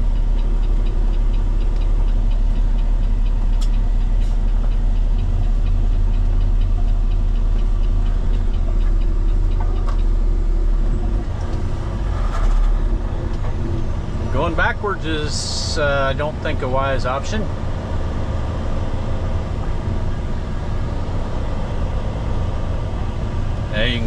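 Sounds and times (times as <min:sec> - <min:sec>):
truck diesel engine running: 0:00.0 - 0:24.0
rapid even ticking: 0:00.1 - 0:11.7.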